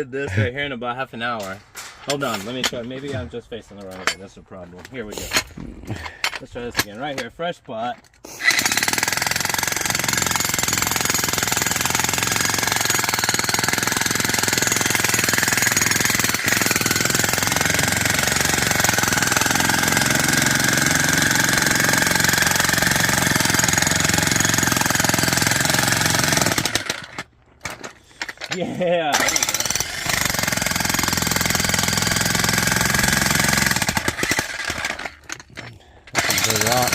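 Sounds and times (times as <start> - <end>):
jackhammer chiselling rocky ground: 8.3 - 36.9.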